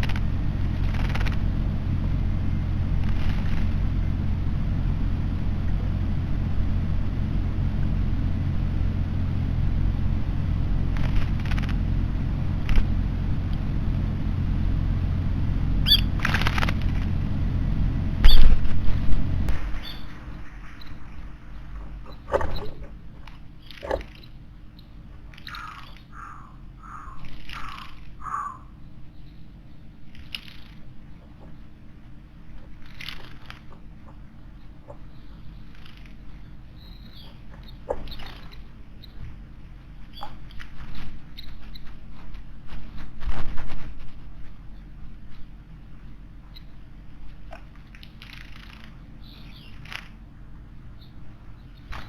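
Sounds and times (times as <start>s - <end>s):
rapid bird rattle: 0.0s - 1.6s, 3.0s - 3.9s, 10.9s - 11.8s, 15.8s - 17.2s, 19.5s - 29.4s, 30.0s - 39.2s, 46.6s - 50.2s
steady low rumble: 0.0s - 52.0s
bird calls: 15.8s - 16.8s, 18.2s - 18.6s, 19.5s - 31.8s, 32.6s - 39.4s, 40.0s - 42.0s, 47.5s - 50.2s, 50.9s - 52.0s.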